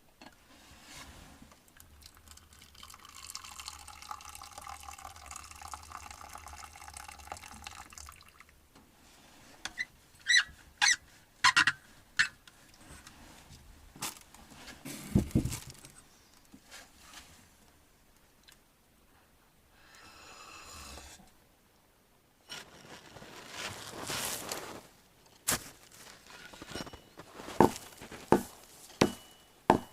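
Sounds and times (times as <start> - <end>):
liquid pouring: 2.0 - 8.5.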